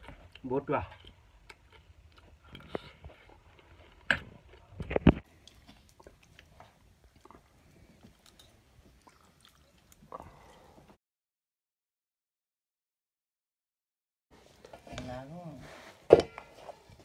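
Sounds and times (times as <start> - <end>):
person chewing and biting: 0.0 - 10.2.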